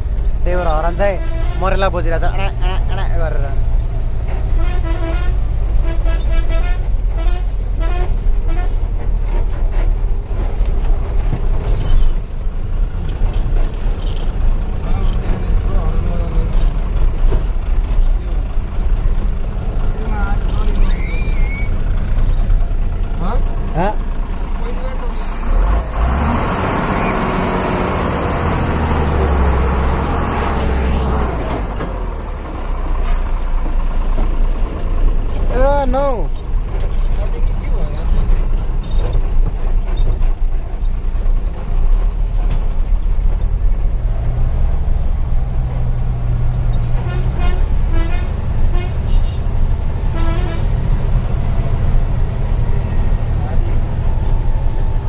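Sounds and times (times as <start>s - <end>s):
diesel engine drone: 0.0s - 55.0s
road noise: 0.0s - 55.0s
truck air horn wavering notes: 4.5s - 8.8s, 46.9s - 49.4s, 50.1s - 50.7s.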